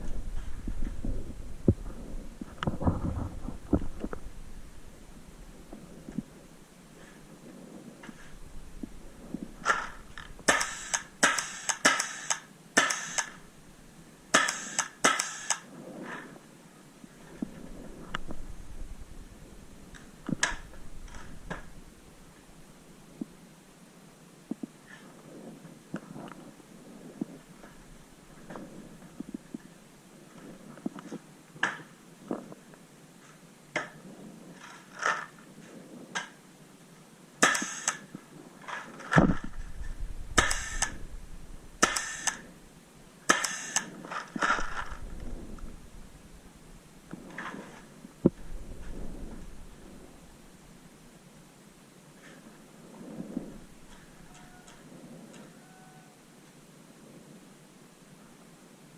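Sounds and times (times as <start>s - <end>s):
paintball marker firing pops: 10.5s - 13.4s, 14.3s - 15.6s, 40.4s - 41.0s, 41.8s - 42.4s.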